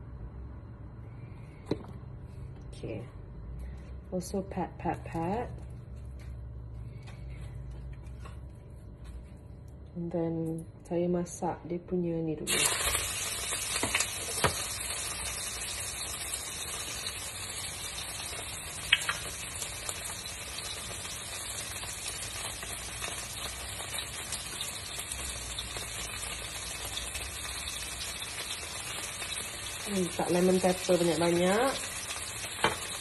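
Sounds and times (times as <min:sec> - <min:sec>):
fish sizzling in a pan: 0:12.5 - 0:33.0.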